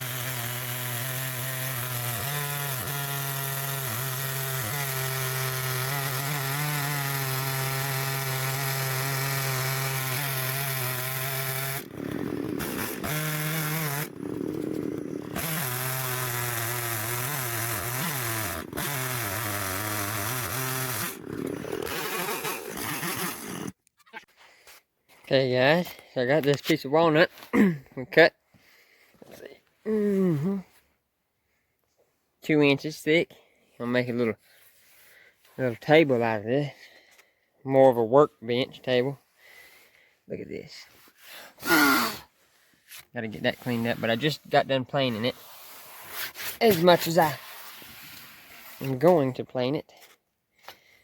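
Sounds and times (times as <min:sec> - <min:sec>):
chainsaw cutting wood: 0:00.0 - 0:23.8, 0:41.2 - 0:42.3, 0:42.9 - 0:49.4.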